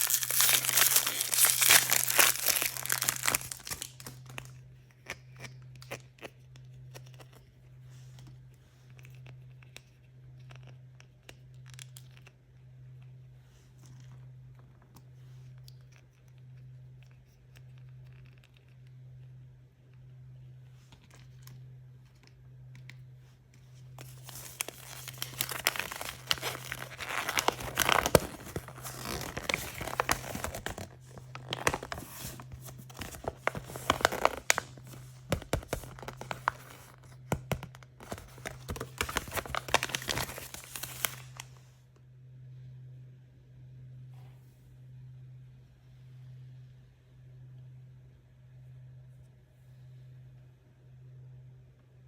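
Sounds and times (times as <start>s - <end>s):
plastic packaging tearing and crinkling: 0.0s - 4.6s, 24.0s - 41.6s
low steady hum: 0.0s - 52.0s.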